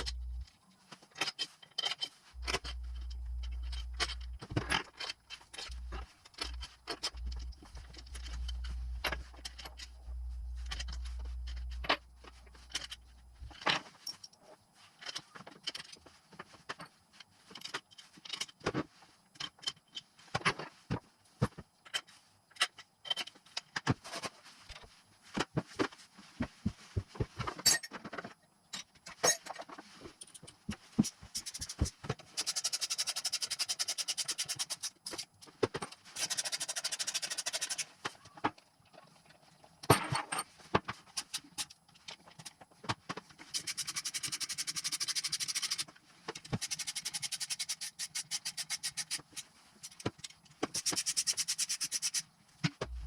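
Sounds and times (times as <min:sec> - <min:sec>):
ratchet wrench clicking: 0:31.4 - 0:35.2, 0:36.2 - 0:37.9, 0:43.5 - 0:45.8, 0:46.6 - 0:49.3, 0:50.7 - 0:52.2.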